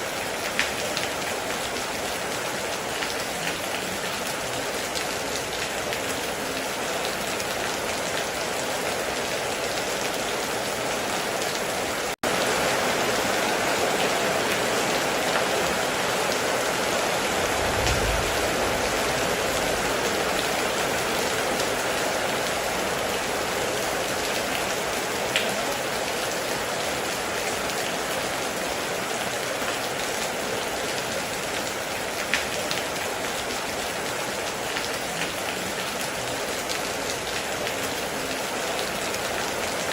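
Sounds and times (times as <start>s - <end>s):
heavy rain falling: 0.0s - 39.9s
low rumble: 17.2s - 21.0s.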